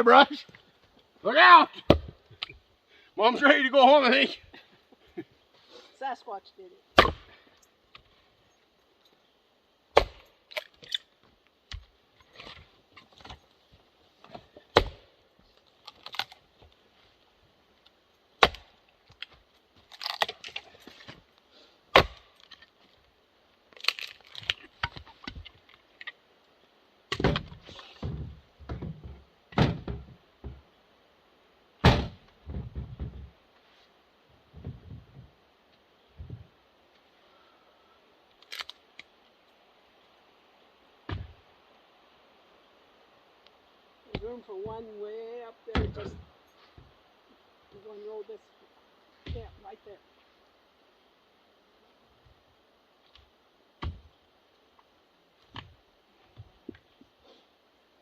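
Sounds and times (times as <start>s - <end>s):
firewood knocking and thudding: 1.7s - 2.6s, 7.0s - 8.2s, 9.9s - 15.1s, 18.4s - 21.2s, 21.9s - 22.6s, 23.8s - 26.1s, 27.1s - 30.7s, 31.8s - 33.4s, 34.5s - 35.3s, 41.0s - 41.4s, 45.7s - 47.0s, 49.2s - 49.6s, 53.0s - 54.2s, 55.4s - 57.0s.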